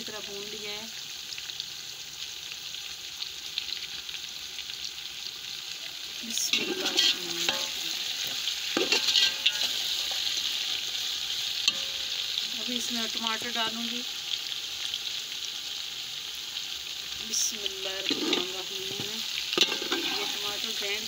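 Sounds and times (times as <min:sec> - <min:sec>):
chicken sizzling in oil: 0:00.0 - 0:21.0
metal spoon scraping pot: 0:06.5 - 0:10.3, 0:18.0 - 0:20.6.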